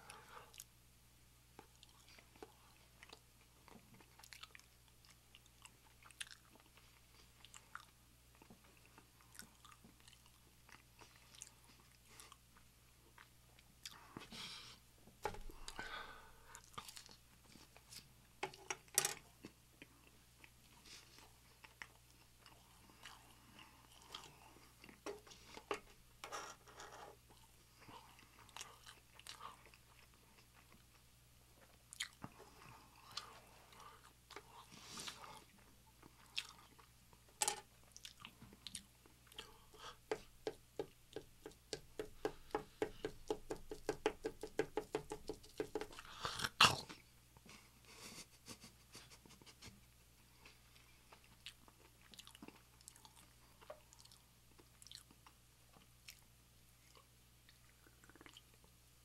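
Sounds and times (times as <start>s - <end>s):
person chewing crunchy food: 1.7s - 12.4s, 27.4s - 31.0s, 31.6s - 37.0s, 37.9s - 40.0s, 50.8s - 58.6s.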